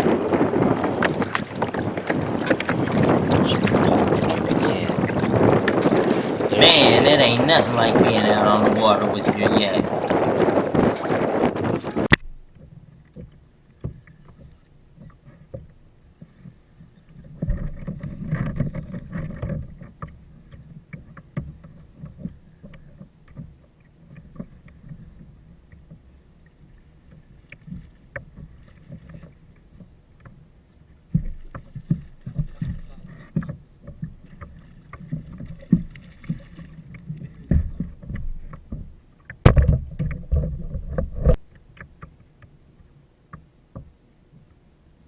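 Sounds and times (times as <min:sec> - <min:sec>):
wash of water: 0:00.0 - 0:12.1
boat clicks and knocks: 0:00.0 - 0:12.2
water lapping against hull: 0:00.0 - 0:42.7.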